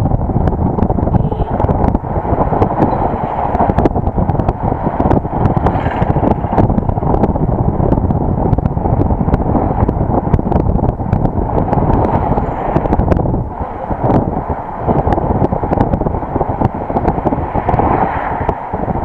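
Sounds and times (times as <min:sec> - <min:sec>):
vehicle road noise: 0:00.0 - 0:19.0
wind buffeting microphone: 0:00.0 - 0:19.0.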